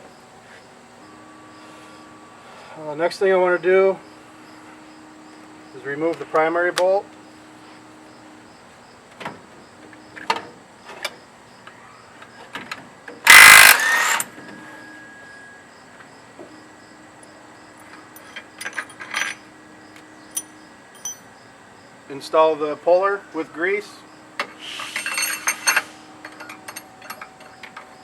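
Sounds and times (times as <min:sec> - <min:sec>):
impact wrench burst: 0:13.3 - 0:14.3
sockets and tools clinking: 0:13.3 - 0:14.3, 0:20.4 - 0:21.3.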